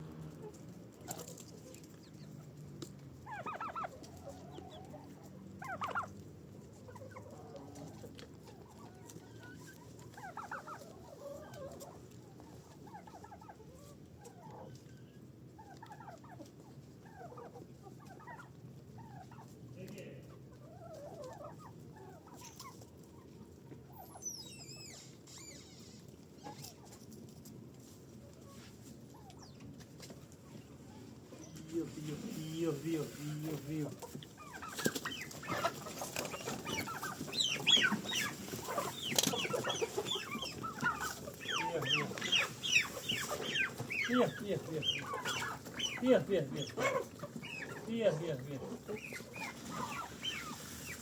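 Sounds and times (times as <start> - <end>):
chickens clucking: 0.0 - 51.0
high squeak: 24.1 - 26.0.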